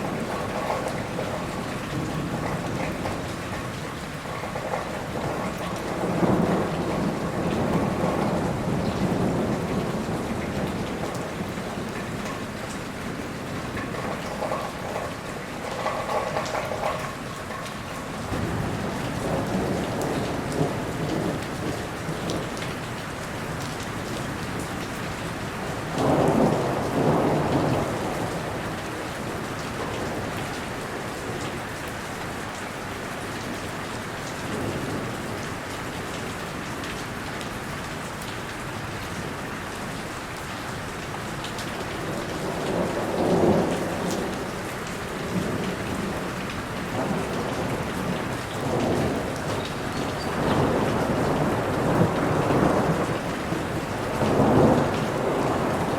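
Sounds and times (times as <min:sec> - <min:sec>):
low rumbles of thunder: 0:00.0 - 0:22.9, 0:25.8 - 0:30.6, 0:41.7 - 0:55.9
steady rain falling: 0:00.0 - 0:55.9.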